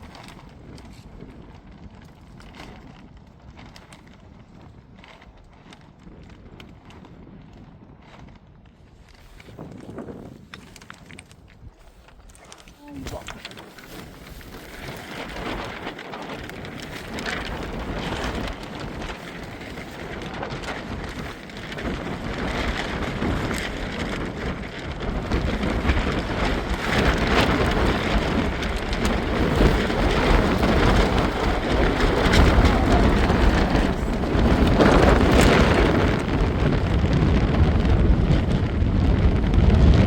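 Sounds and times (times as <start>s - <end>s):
wind buffeting microphone: 0.0s - 40.0s
heavy rain falling: 12.9s - 40.0s.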